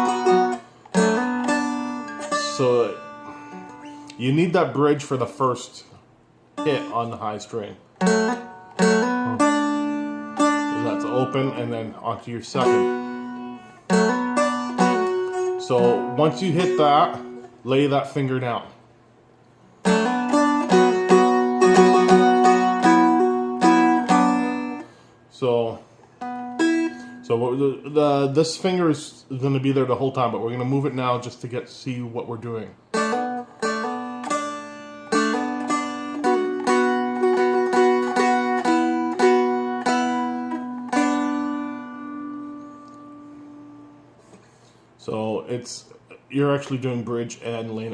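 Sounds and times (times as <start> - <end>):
dulcimer drone note: 0.0 - 3.9, 8.0 - 11.8, 12.6 - 17.5, 19.8 - 24.8, 33.0 - 44.0
dulcimer melody picked: 0.0 - 4.0, 6.6 - 7.1, 8.0 - 11.8, 12.6 - 17.5, 19.9 - 24.9, 33.0 - 43.8.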